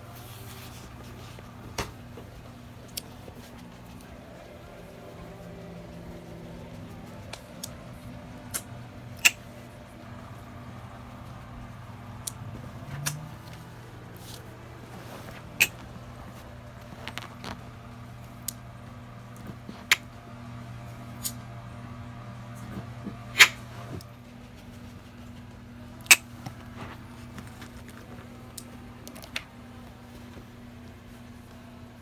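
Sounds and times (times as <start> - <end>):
opossum clicking: 8.5 - 9.5.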